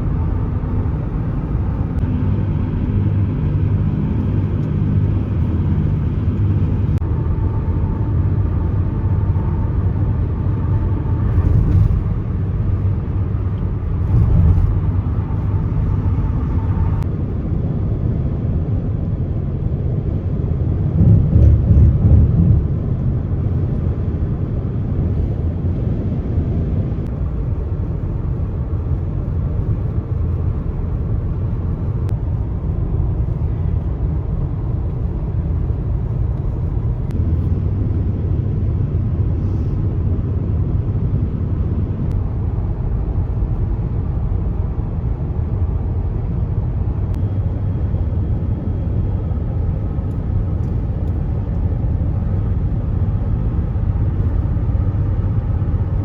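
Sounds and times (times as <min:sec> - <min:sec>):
car interior road and engine noise: 0:00.0 - 0:56.0.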